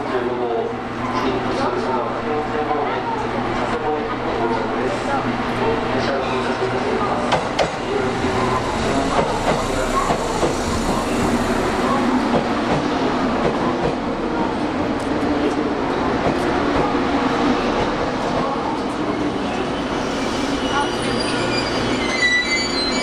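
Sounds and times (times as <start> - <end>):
electric train rolling slowly: 3.1 - 23.0.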